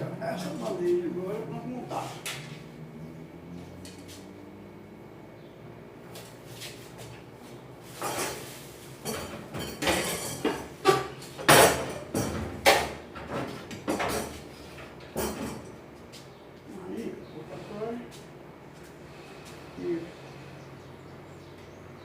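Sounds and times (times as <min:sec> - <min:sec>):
metal stove parts clattering: 0:08.0 - 0:12.8.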